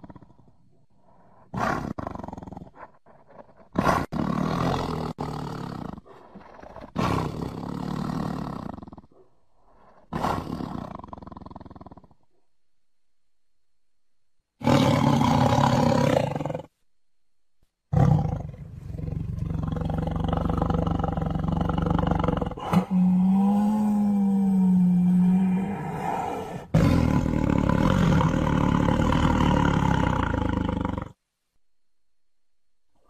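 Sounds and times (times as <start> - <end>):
tiger roaring and growling: 1.5 - 12.2, 14.6 - 16.7, 17.9 - 31.2.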